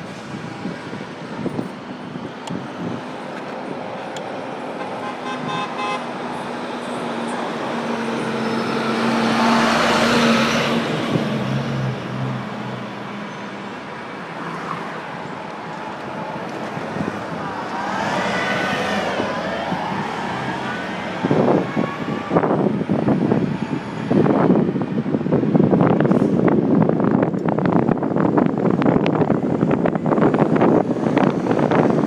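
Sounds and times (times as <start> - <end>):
street traffic: 0.0 - 32.0
car horn toot: 4.8 - 6.1
motor vehicle passing: 16.0 - 22.8.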